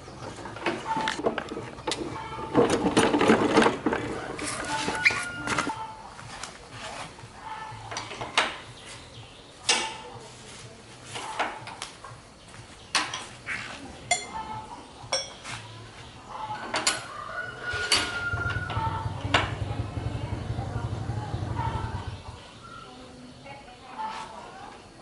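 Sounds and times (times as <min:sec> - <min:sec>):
metal tools clinking and knocking: 0:14.0 - 0:15.5, 0:16.5 - 0:18.2.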